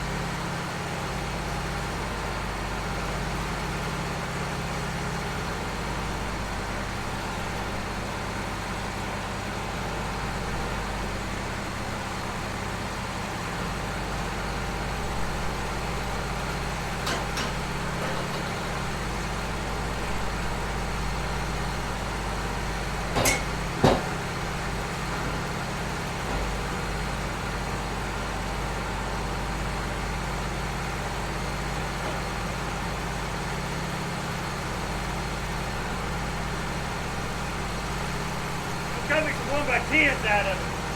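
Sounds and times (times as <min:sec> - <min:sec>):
engine running steadily: 0:00.0 - 0:40.9
sharp metal clanks: 0:23.2 - 0:24.1.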